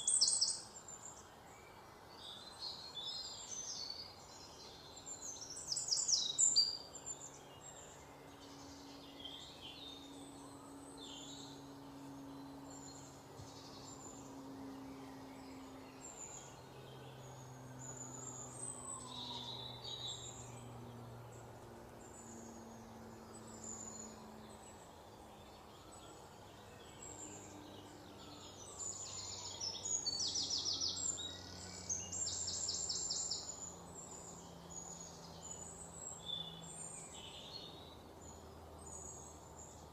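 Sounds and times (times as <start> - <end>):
faint low hum: 0.0 - 39.9
small birds chirping and trilling: 0.0 - 39.9.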